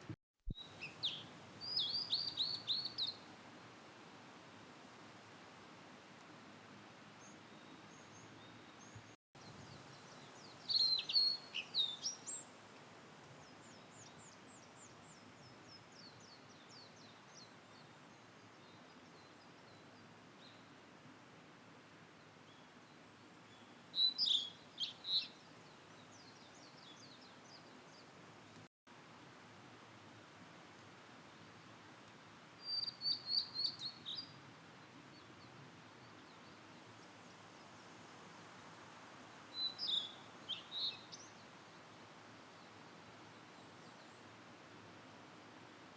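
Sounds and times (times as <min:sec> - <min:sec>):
background hiss: 0:00.0 - 0:45.9
bird whistled song: 0:00.5 - 0:03.2, 0:10.7 - 0:12.4, 0:24.0 - 0:25.3, 0:32.6 - 0:34.3, 0:39.6 - 0:41.3.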